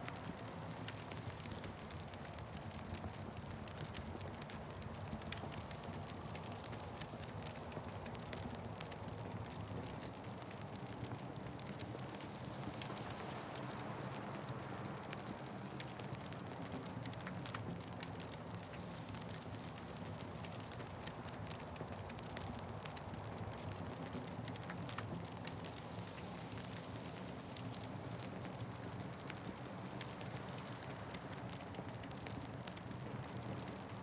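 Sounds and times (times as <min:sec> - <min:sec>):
wood fire crackling: 0:00.0 - 0:34.0.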